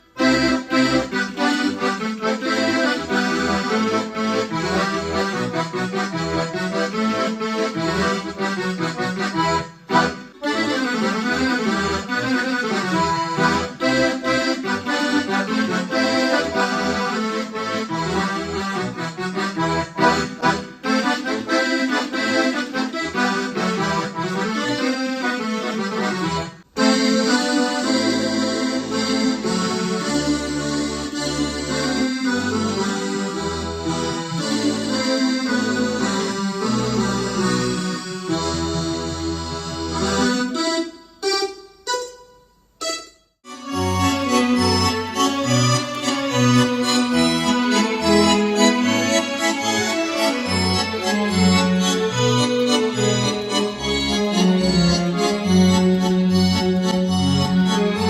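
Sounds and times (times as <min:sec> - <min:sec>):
button accordion playing lively tune: 0:00.0 - 0:58.0.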